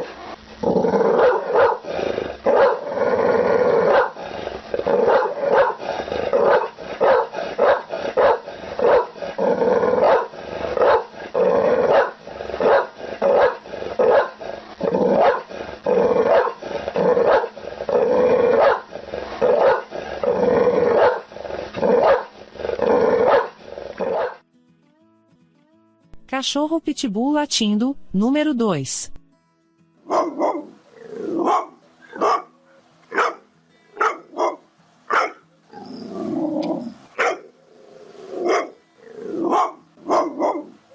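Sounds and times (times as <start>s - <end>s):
dog growling: 0.0s - 24.4s, 30.1s - 32.4s, 35.2s - 40.9s
dog barking aggressively: 1.1s - 2.9s, 3.8s - 9.2s, 9.9s - 15.5s, 16.1s - 17.7s, 18.5s - 22.4s, 23.1s - 24.4s, 30.1s - 32.5s, 33.1s - 33.4s, 34.0s - 35.4s, 37.2s - 37.5s, 38.4s - 38.8s, 39.4s - 40.8s.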